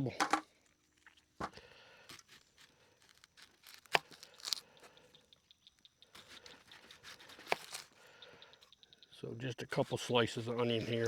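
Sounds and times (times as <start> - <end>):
onion skin crackling and tearing: 0.6 - 4.9, 6.1 - 8.0.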